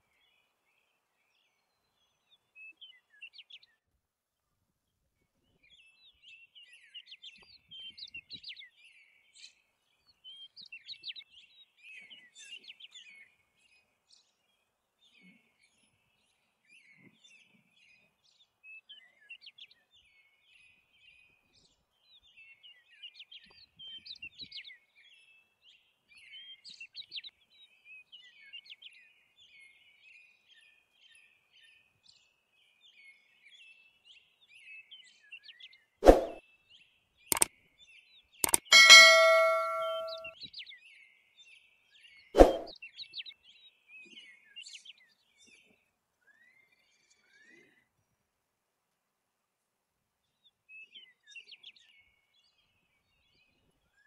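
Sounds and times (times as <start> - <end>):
small birds chirping: 5.4 - 40.3.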